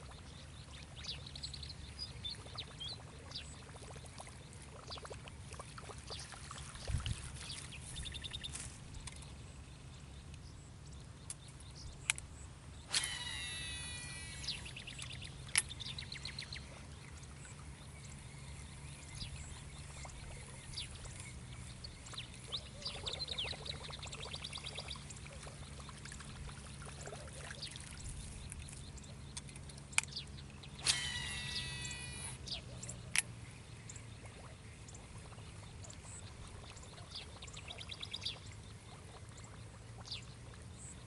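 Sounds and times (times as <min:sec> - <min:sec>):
small birds chirping: 0:00.0 - 0:41.0
steady low hum: 0:00.0 - 0:41.0
fishing reel click: 0:12.9 - 0:15.9, 0:30.8 - 0:32.4
fishing reel spool whirring: 0:12.9 - 0:17.0, 0:22.6 - 0:33.3.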